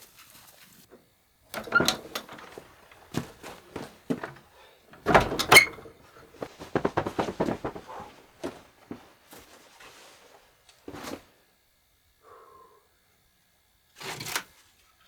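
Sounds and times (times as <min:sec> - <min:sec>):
hard objects knocking and clattering: 0:01.6 - 0:09.1.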